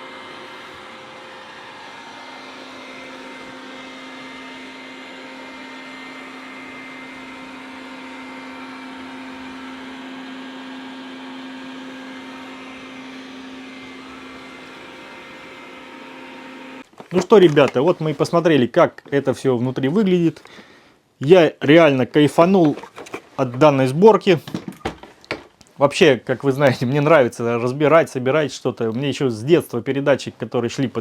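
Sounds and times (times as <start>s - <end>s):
robot vacuum running: 0.0s - 17.8s.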